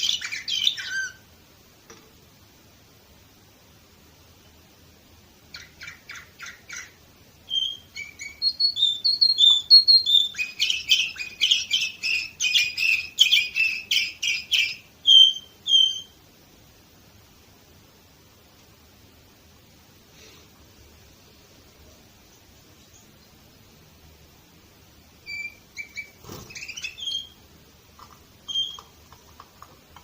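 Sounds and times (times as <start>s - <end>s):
canary singing: 0.0s - 1.3s, 5.5s - 16.2s, 25.2s - 27.4s, 28.4s - 29.2s.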